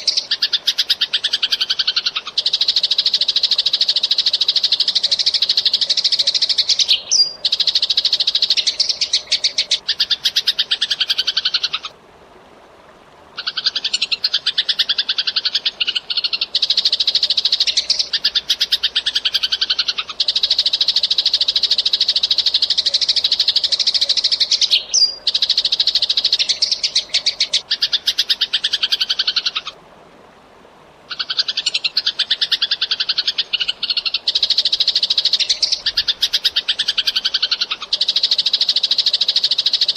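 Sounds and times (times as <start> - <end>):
sparrows chirping: 33.5 - 39.9.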